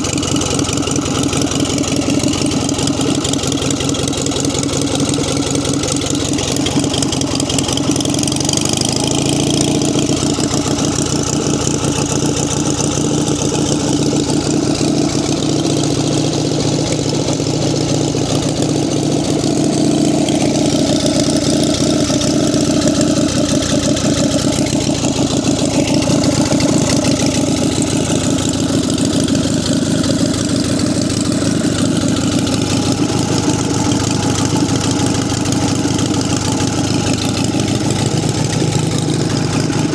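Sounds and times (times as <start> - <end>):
stationary engine running: 0.0 - 39.9.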